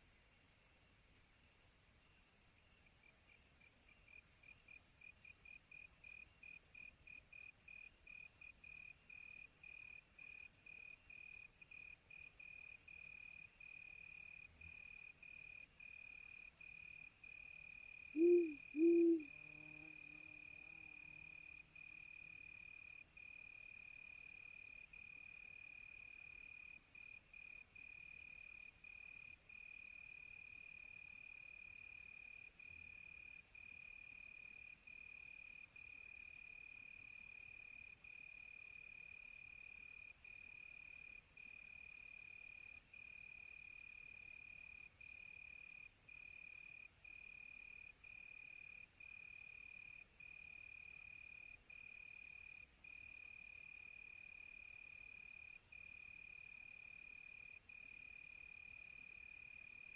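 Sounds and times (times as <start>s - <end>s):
insect hiss: 0.0s - 8.8s, 16.4s - 22.8s
crickets chirping: 0.0s - 59.9s
owl hooting: 18.2s - 19.4s.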